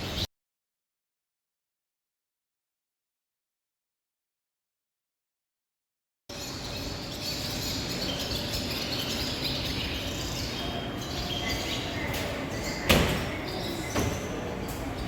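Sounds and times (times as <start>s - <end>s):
steady background noise: 6.3s - 15.0s
swallows twittering: 6.3s - 15.0s.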